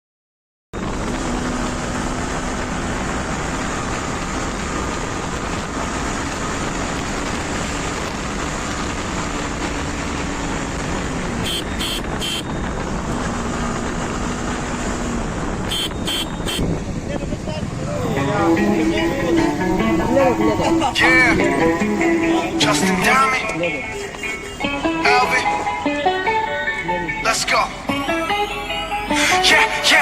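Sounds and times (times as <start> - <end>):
wind rush on microphone: 0.8 - 22.0.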